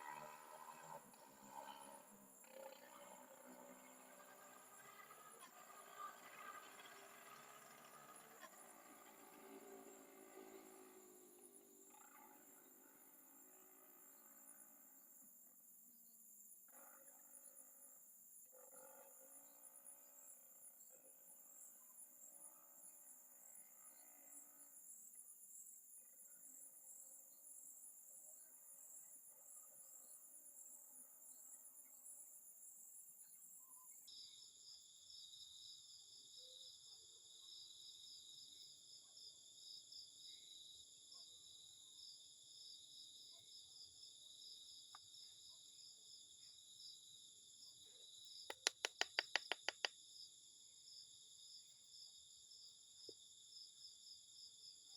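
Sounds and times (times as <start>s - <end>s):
insects trilling: 0.0s - 54.9s
loud rapid clicks: 48.5s - 49.9s.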